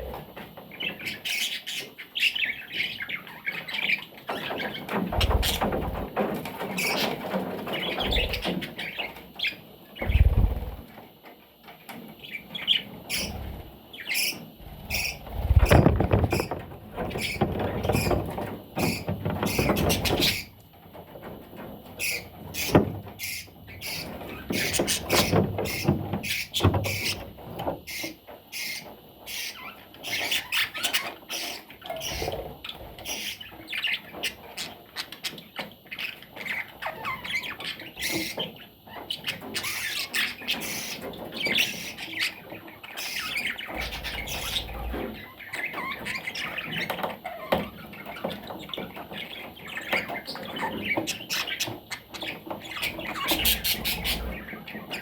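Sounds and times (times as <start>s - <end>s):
budgerigar chattering and squawking: 1.0s - 5.9s, 7.8s - 9.0s, 14.1s - 16.5s, 39.1s - 47.9s, 49.6s - 55.0s.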